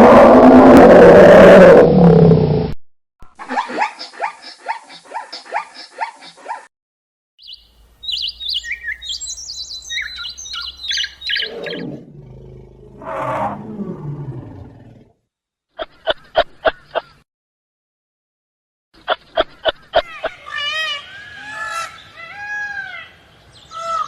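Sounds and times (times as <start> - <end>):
high quick chirping: 7.4 - 11.8
rapid pulsed animal calls: 7.4 - 11.9
low falling animal call: 9.9 - 14.8.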